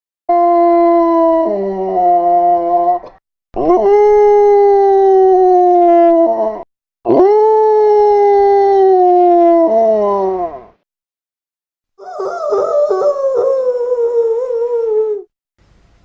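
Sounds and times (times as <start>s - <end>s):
dog howling: 12.0s - 15.3s.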